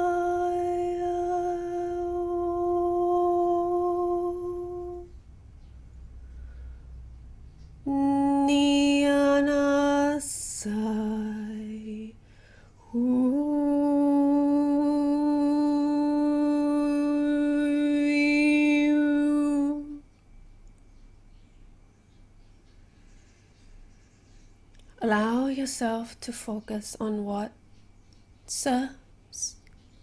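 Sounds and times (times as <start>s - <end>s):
woman toning long held notes: 0.0s - 5.2s, 12.9s - 20.0s
woman breathing: 6.1s - 7.2s, 12.2s - 12.8s.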